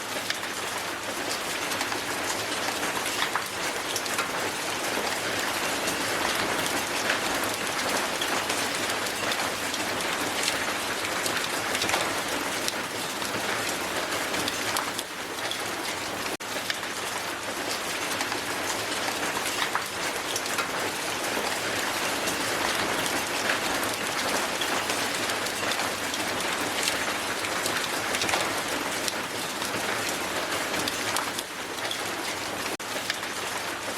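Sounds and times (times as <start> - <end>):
hail falling on ground: 0.0 - 33.9.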